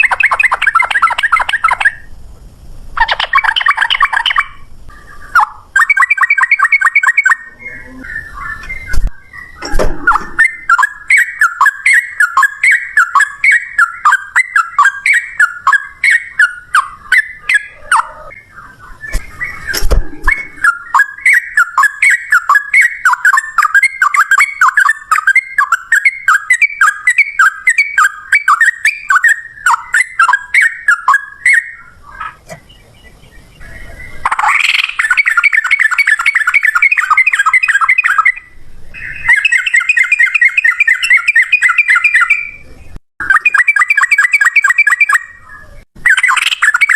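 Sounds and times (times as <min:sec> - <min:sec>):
low thump: 0:09.0 - 0:10.4.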